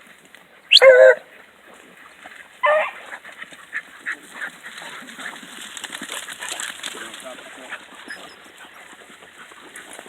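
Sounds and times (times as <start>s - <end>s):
dogs yelping and barking: 0.7s - 1.3s, 2.3s - 5.4s, 7.8s - 10.0s
hound baying: 0.7s - 1.3s, 2.3s - 10.0s.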